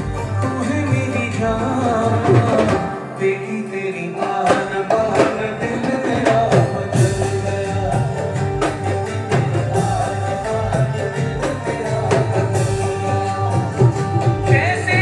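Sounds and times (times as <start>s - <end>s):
held steady notes: 0.0s - 15.0s
person singing: 0.0s - 15.0s
hand drum strokes: 4.2s - 15.0s.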